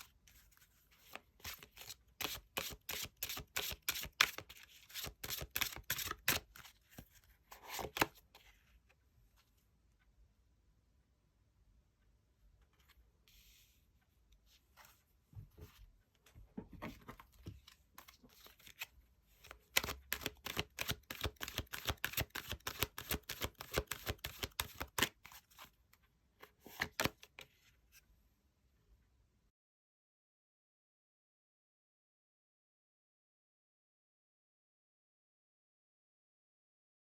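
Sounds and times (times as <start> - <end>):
cards being shuffled: 0.3 - 8.2, 17.7 - 25.7, 26.6 - 27.5.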